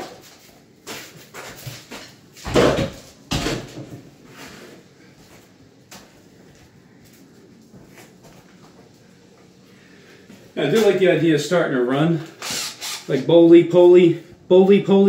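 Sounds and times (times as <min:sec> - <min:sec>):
knocks and thumps on wooden cabinet: 0:02.4 - 0:04.0.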